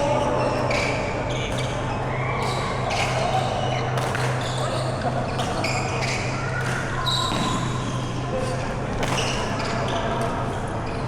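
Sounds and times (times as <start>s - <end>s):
racket striking shuttlecock: 4.0s - 4.5s, 6.5s - 7.7s, 8.4s - 9.5s
shoe squeaks on court floor: 4.4s - 9.9s.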